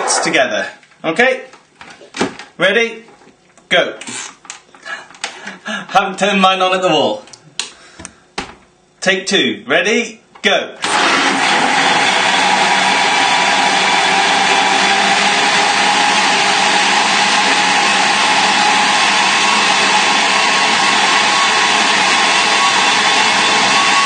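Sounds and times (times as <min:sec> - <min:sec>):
blender motor whirring: 0:10.8 - 0:24.0.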